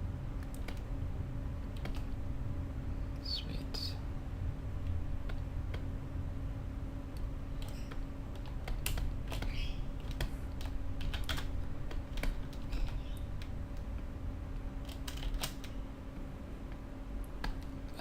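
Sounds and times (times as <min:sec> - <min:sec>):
steady low hum: 0:00.0 - 0:18.0
keyboard typing: 0:01.7 - 0:02.2, 0:07.6 - 0:13.9, 0:14.8 - 0:15.8.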